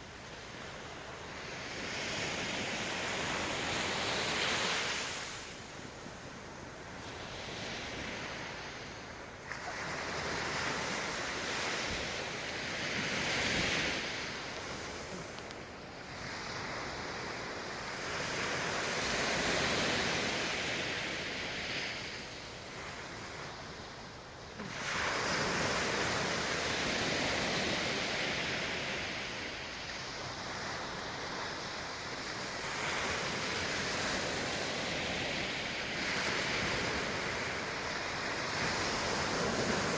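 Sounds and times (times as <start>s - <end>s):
sea waves breaking on shore: 0.0s - 39.9s
wind noise on microphone: 6.9s - 23.8s.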